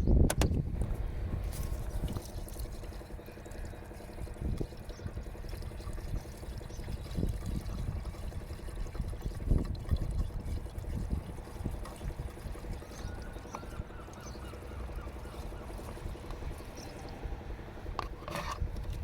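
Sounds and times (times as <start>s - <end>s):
water pouring into reservoir: 1.4s - 19.0s.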